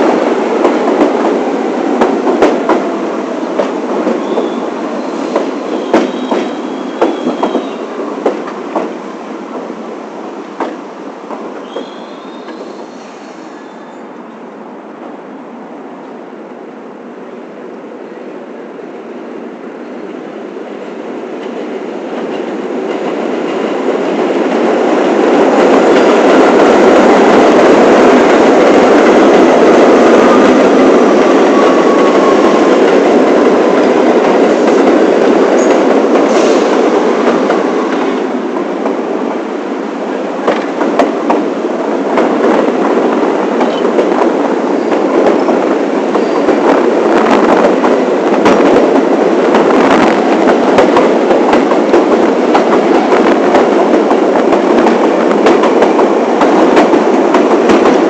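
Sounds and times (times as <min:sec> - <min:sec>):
subway train running: 0:00.0 - 0:58.0
faint wheel squeal: 0:11.7 - 0:14.1.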